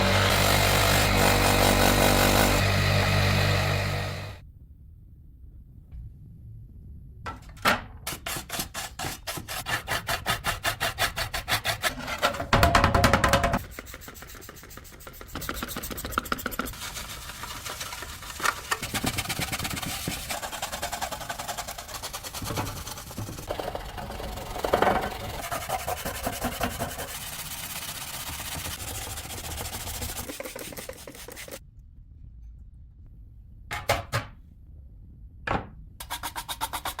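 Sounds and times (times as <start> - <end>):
loud steady low hum: 0.0 - 4.4
hands rubbing: 25.8 - 31.6.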